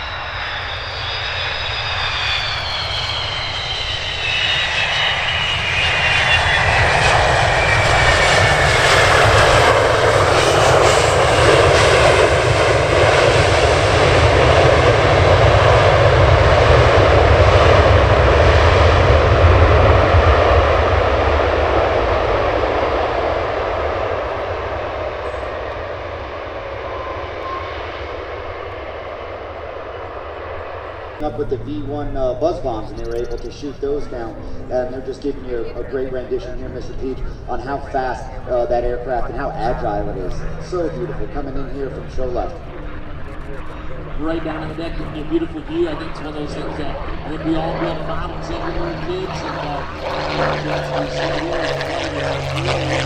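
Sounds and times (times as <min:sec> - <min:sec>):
propeller plane engine flying past: 0:00.0 - 0:53.0.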